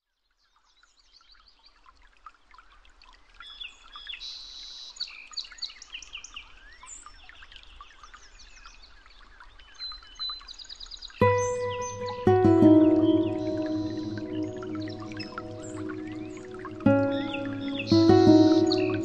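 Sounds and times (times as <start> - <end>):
small birds chirping: 9.6 - 19.0.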